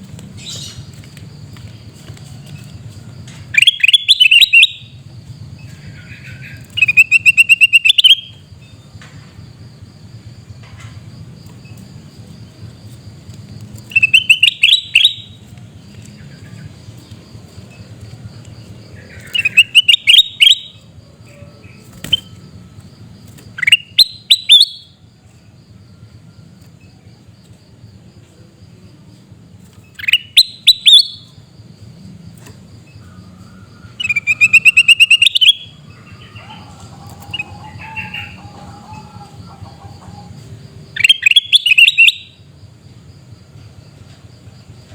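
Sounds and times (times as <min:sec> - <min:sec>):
high insect whine: 0:00.0 - 0:44.9
bulbul harsh scolding calls: 0:05.8 - 0:08.4, 0:13.8 - 0:15.4, 0:18.9 - 0:22.4, 0:33.2 - 0:42.3.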